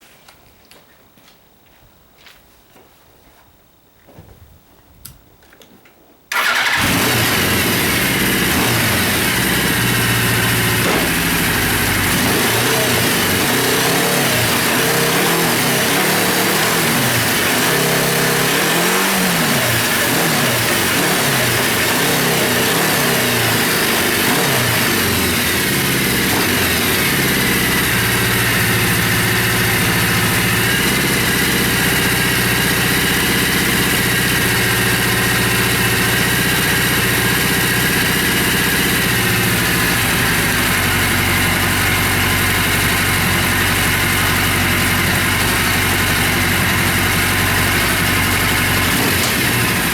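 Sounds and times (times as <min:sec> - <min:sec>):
motorcycle engine revving and idling: 0:06.3 - 0:49.9.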